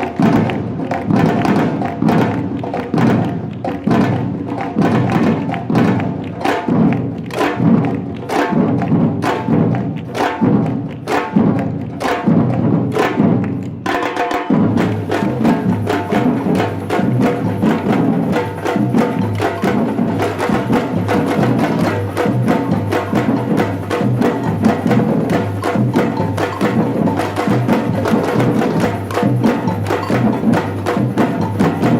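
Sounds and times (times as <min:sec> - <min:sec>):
percussion ensemble drumming: 0:00.0 - 0:31.9
sharp hand-percussion hits: 0:00.0 - 0:31.9.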